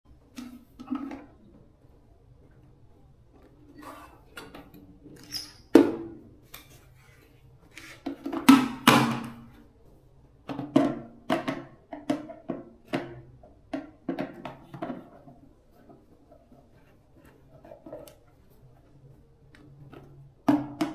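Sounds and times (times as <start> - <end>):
hard objects knocking and clunking: 10.4 - 16.8.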